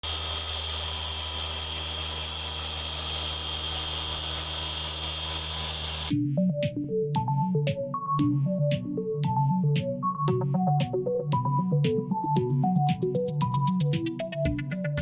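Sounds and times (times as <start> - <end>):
high whine: 0.0 - 6.1
motor hum: 0.0 - 6.1.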